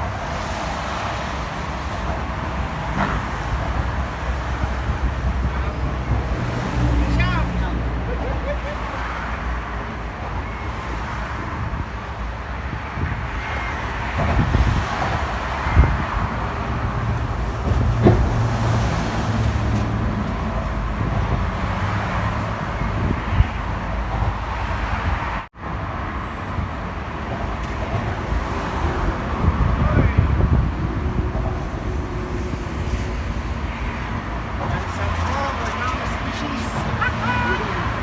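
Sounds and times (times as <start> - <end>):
cars passing on road: 0.0 - 38.0.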